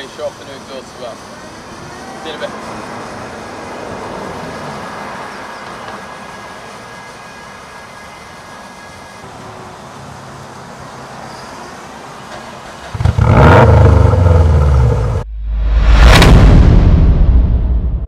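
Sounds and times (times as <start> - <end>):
car engine and road noise: 0.0 - 18.0
loud exhaust burst: 12.9 - 18.0.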